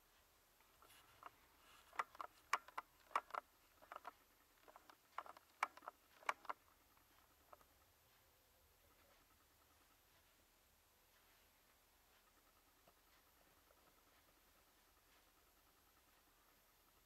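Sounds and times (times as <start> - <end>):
wooden clock parts clicking: 0.7 - 7.8.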